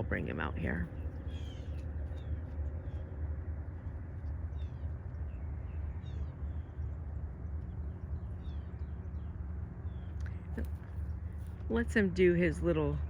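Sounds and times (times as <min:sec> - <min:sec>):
small birds chirping: 0:00.0 - 0:03.0
steady low rumble: 0:00.0 - 0:13.0.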